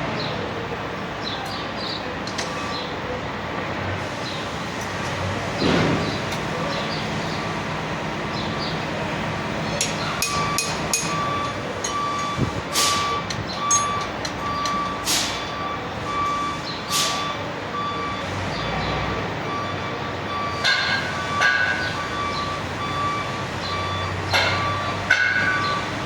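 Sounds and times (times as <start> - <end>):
vehicle reversing alarm beeping: 4.1 - 26.0
metal clanks: 9.8 - 15.5, 24.3 - 25.8
short loud air hisses: 15.0 - 15.4, 16.9 - 17.2.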